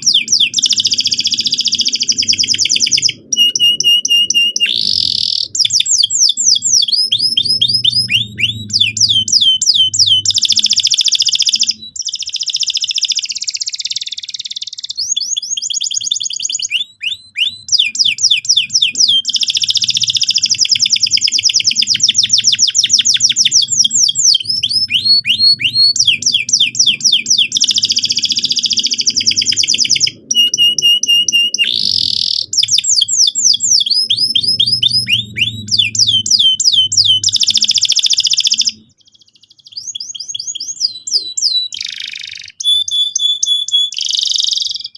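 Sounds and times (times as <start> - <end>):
faint low hum: 0.0 - 12.2, 15.5 - 41.7
canary singing rapid trills: 0.0 - 44.9.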